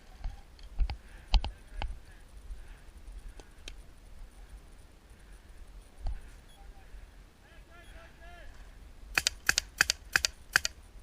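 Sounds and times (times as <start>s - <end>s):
paintball marker shots: 9.2s - 10.8s.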